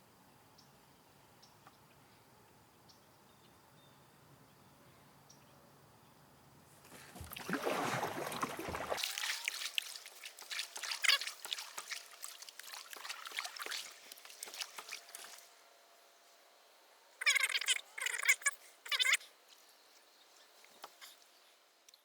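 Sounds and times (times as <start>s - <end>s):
water splashing and trickling: 6.8s - 15.7s.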